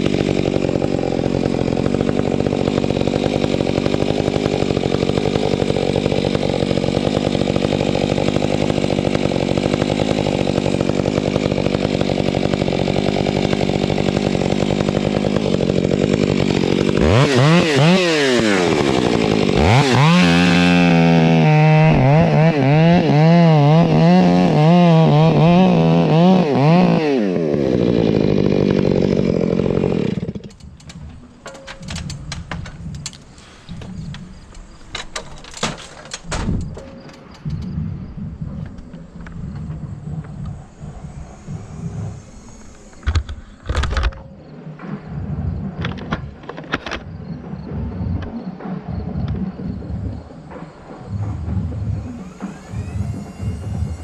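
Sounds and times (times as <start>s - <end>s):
chainsaw engine revving: 0.0s - 54.0s
knocks and clicks: 30.4s - 37.8s.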